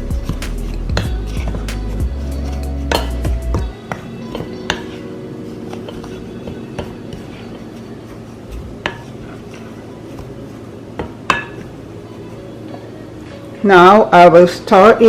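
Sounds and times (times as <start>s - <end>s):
utensil stirring dry ingredients: 0.0s - 13.0s
utensil clinking against bowl: 0.6s - 5.1s, 8.8s - 10.3s, 11.0s - 11.7s.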